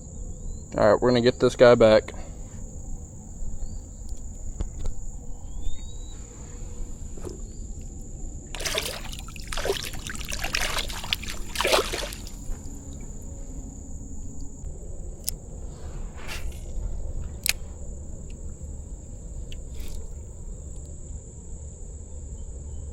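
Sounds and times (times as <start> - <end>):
high-pitched cricket drone: 0.0 - 22.9
water splashing and sloshing: 3.4 - 20.9.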